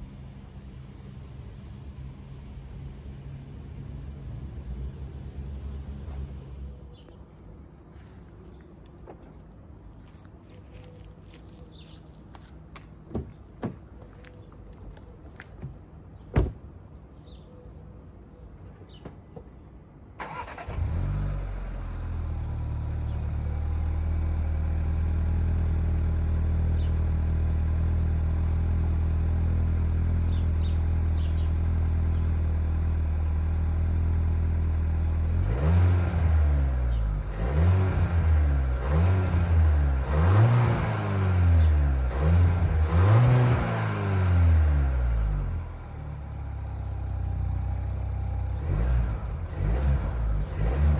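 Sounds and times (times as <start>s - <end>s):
car engine starting and idling: 20.1s - 50.9s
engine revving: 20.2s - 26.2s, 35.0s - 45.8s, 48.3s - 50.9s.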